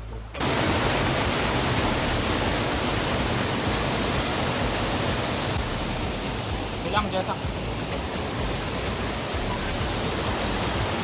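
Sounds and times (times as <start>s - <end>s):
waterfall rushing: 0.3s - 11.0s.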